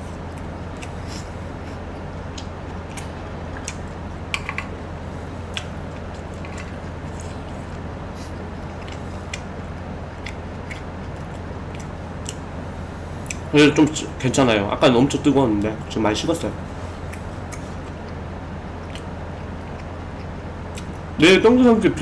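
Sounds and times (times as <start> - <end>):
wet chewing: 0.1 - 12.5, 13.2 - 13.5, 17.0 - 18.2, 18.8 - 21.1.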